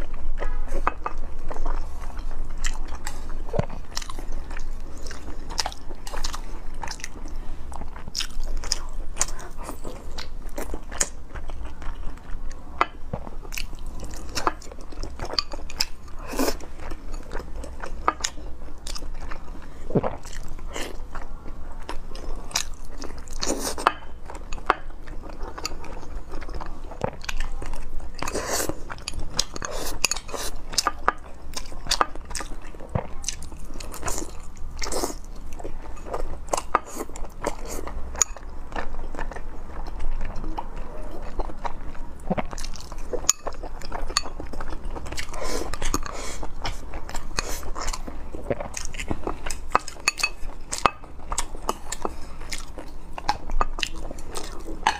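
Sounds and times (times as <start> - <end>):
person chewing: 0.0 - 54.9.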